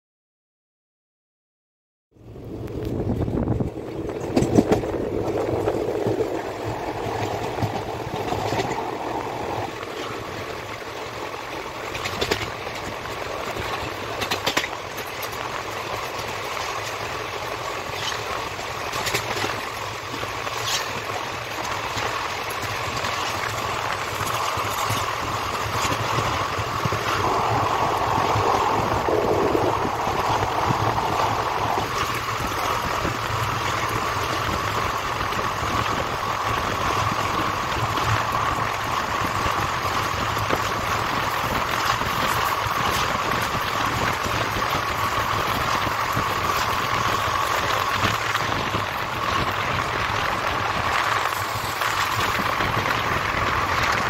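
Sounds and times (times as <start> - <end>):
train wheels rumbling on track: 2.2 - 54.0
rushing air: 2.4 - 11.1, 23.1 - 54.0.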